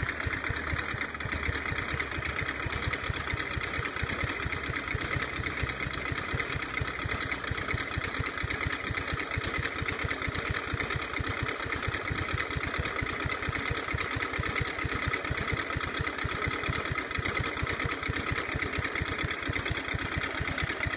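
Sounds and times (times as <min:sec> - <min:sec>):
motorcycle engine idling: 0:00.0 - 0:20.9.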